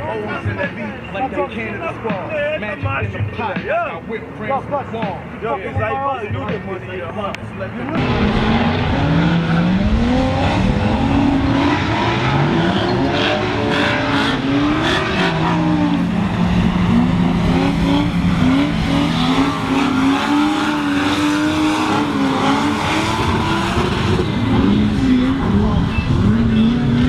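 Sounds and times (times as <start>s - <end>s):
car engines revving hard: 7.8s - 27.0s.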